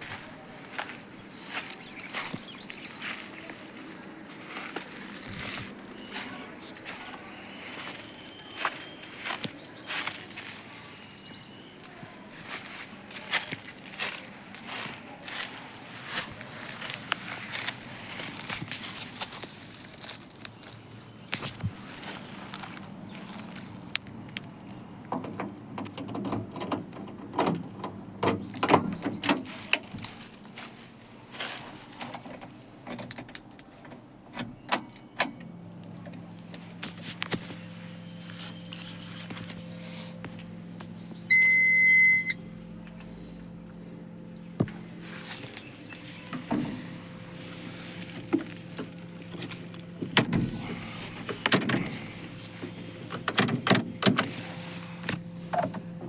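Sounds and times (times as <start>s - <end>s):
handling clicks and knocks: 23.6s - 30.2s, 45.4s - 54.4s
steady low hum: 35.3s - 56.0s
high electronic beep: 41.3s - 42.4s.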